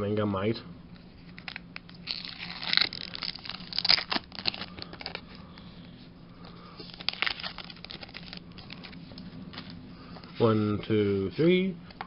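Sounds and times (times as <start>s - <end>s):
foil wrapper crinkling and tearing: 1.4s - 5.2s, 6.8s - 9.0s.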